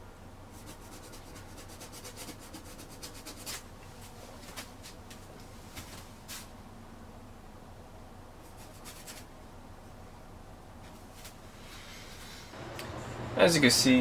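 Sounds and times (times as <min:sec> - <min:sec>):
paintbrush scrubbing on canvas: 0:00.5 - 0:05.0, 0:08.5 - 0:09.3.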